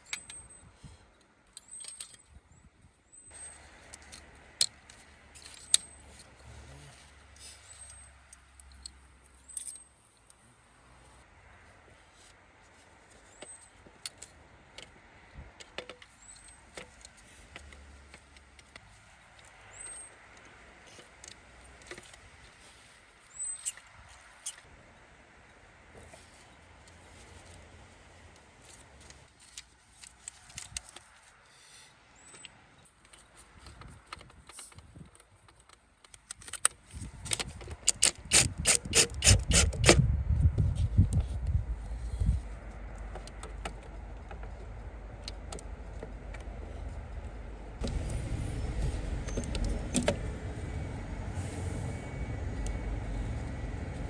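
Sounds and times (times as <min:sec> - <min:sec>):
low rumbling handling noise: 0:36.8 - 0:54.0
ratchet wrench clicking: 0:37.3 - 0:40.0.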